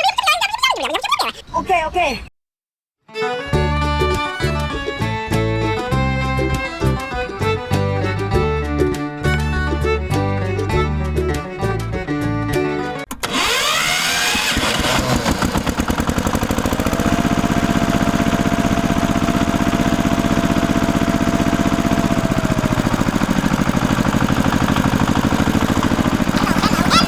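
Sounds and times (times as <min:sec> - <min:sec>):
small tractor engine chugging: 0:13.4 - 0:27.0.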